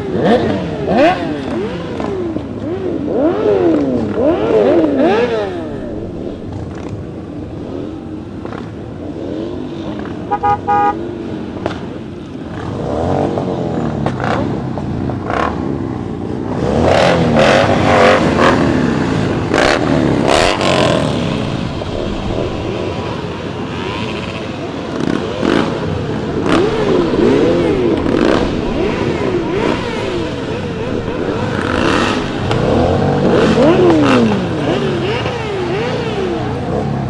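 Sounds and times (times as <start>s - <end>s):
motorcycle engines revving: 0.0s - 37.0s
vehicle horn toot: 10.2s - 11.1s.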